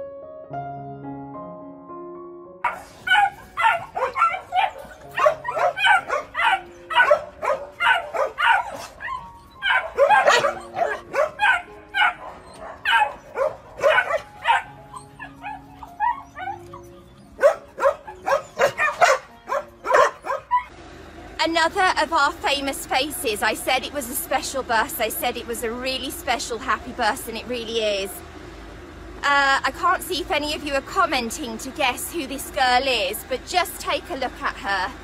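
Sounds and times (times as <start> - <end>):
dogs barking: 2.6 - 20.7.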